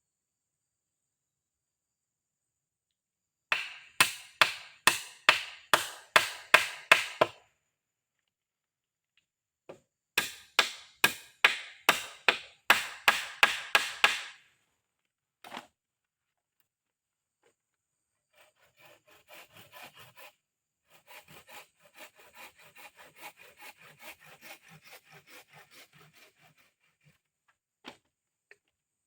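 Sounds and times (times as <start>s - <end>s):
wood chopping strokes: 3.5s - 7.4s, 10.2s - 14.4s, 20.9s - 27.2s.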